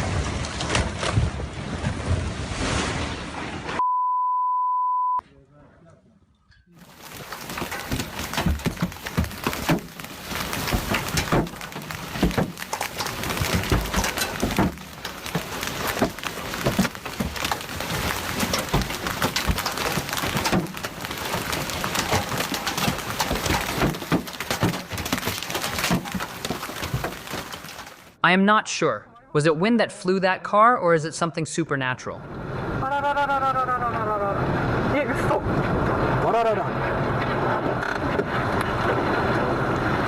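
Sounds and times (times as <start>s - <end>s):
wind and rain rushing: 0.0s - 3.8s, 6.8s - 28.2s, 32.2s - 32.8s, 34.4s - 40.0s
scattered knocks and clatters: 6.8s - 28.2s.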